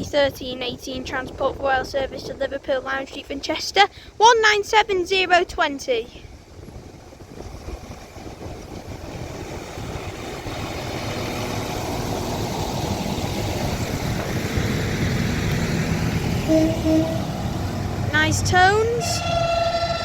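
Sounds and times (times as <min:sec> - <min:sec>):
diesel train arriving: 0:06.3 - 0:20.0
short steady tone: 0:16.5 - 0:17.4.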